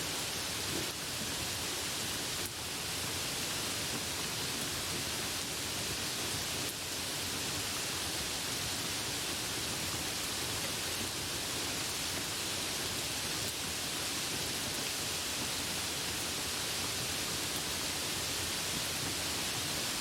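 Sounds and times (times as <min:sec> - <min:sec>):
dense rain hiss: 0:00.0 - 0:20.0.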